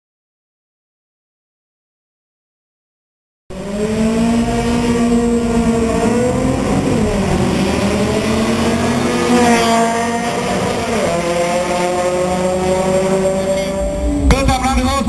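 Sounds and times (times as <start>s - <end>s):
car engine revving hard: 3.5s - 15.0s.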